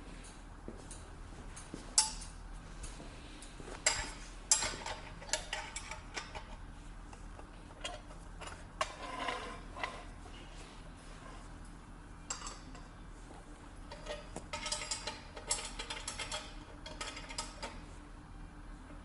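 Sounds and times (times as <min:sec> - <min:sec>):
metallic clinks and knocks: 0:01.6 - 0:03.0, 0:03.8 - 0:06.5, 0:13.9 - 0:17.8.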